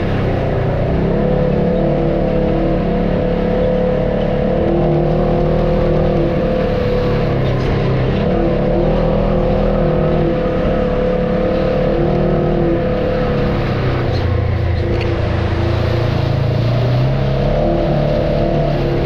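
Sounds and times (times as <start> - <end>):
off-road vehicle engine running: 0.0 - 19.0.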